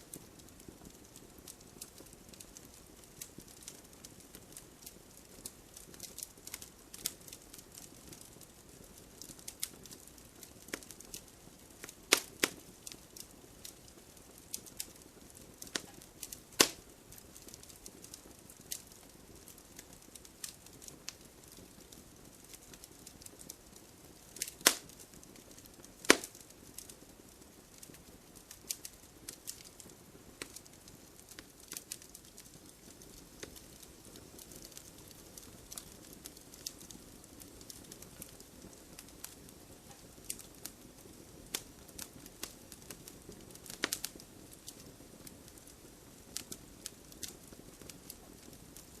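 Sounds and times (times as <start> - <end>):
wood fire hissing and crackling: 0.0 - 49.0
loud pops from logs: 16.6 - 16.8, 24.5 - 24.9, 26.0 - 26.4.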